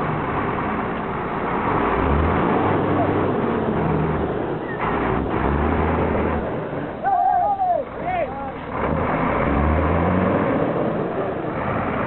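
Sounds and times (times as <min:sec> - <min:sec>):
dense rushing noise: 0:00.0 - 0:12.0
large vehicle engine humming: 0:00.0 - 0:12.0.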